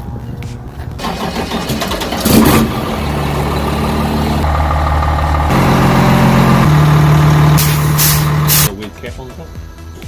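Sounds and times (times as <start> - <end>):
diesel truck engine: 0.8 - 8.7.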